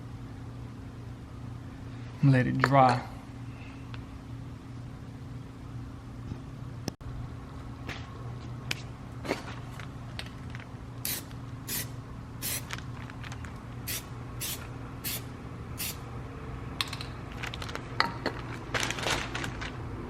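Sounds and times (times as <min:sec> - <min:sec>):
steady low hum: 0:00.0 - 0:20.0
aerosol can spraying: 0:11.1 - 0:12.7, 0:13.9 - 0:15.2, 0:15.8 - 0:16.0.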